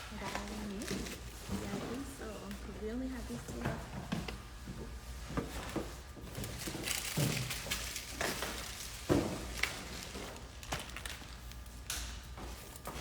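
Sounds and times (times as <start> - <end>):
objects knocking and clattering: 3.5 - 11.4.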